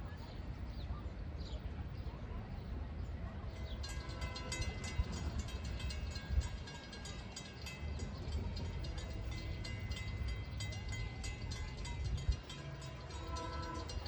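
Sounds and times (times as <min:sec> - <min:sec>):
train rumble: 0:00.0 - 0:14.0
wheels clicking on rails: 0:03.6 - 0:14.0.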